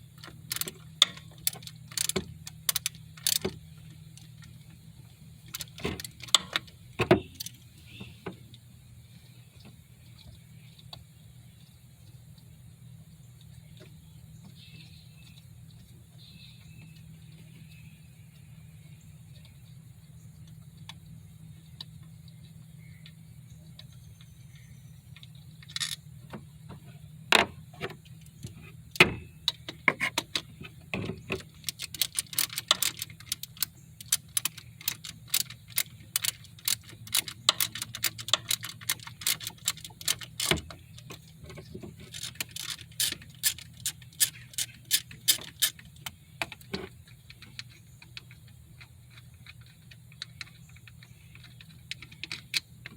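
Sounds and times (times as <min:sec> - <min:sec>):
steady low hum: 0:00.0 - 0:52.9
hand tools clicking on bolts: 0:00.2 - 0:03.6, 0:28.4 - 0:52.9.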